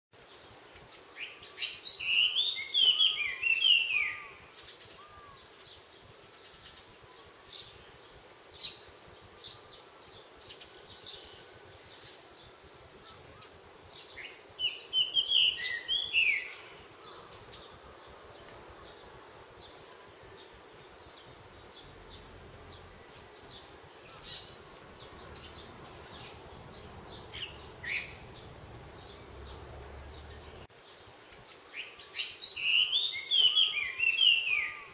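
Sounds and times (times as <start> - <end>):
songbirds warbling: 0.2 - 34.9
bird chirps: 1.2 - 5.5, 13.0 - 17.8, 19.6 - 30.7, 31.7 - 34.9.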